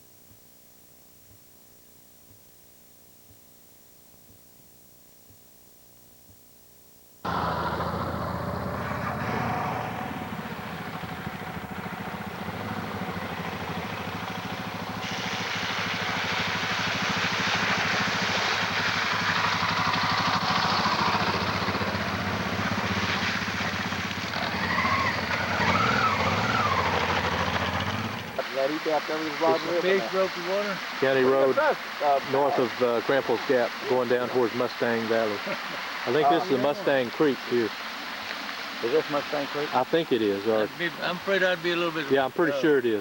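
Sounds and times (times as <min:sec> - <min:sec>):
motorcycle engine running: 0:07.2 - 0:30.0
broad hiss: 0:12.5 - 0:24.3, 0:26.4 - 0:43.0.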